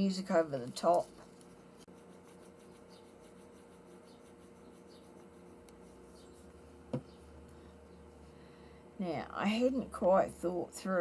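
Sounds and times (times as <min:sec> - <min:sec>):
steady low hum: 0:00.0 - 0:11.0
paper rubbing and scratching: 0:00.8 - 0:06.5.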